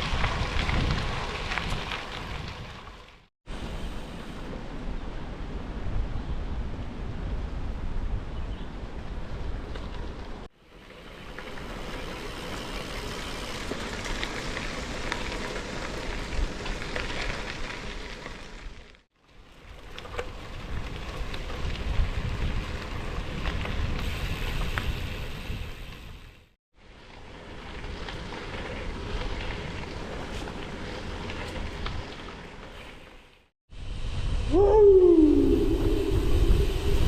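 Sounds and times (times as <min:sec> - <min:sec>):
wind buffeting microphone: 0:00.0 - 0:02.8, 0:20.4 - 0:26.3, 0:33.7 - 0:37.0.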